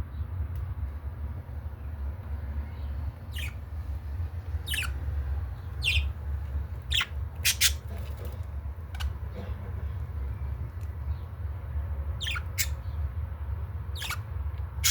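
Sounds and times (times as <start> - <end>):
steady low rumble: 0.0 - 14.9
budgerigars chirping: 3.2 - 3.7, 4.6 - 6.2, 6.8 - 10.4, 12.1 - 13.0, 13.9 - 14.9.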